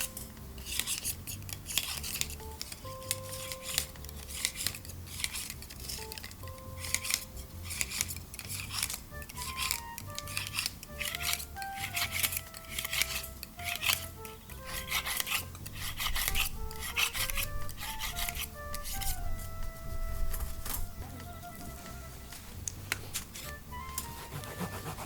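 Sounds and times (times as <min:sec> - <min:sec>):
background music: 0:00.0 - 0:25.0
brush scrubbing metal grill: 0:00.6 - 0:19.2.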